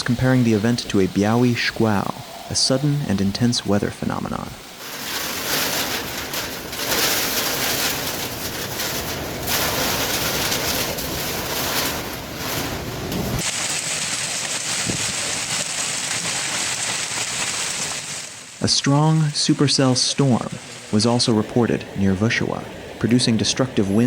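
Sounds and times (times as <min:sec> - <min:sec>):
storm wind gusting: 0:00.0 - 0:15.6.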